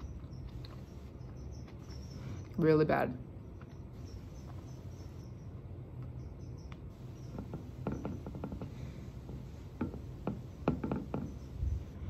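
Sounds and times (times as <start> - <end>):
chewing and mouth clicks: 0.0 - 2.6.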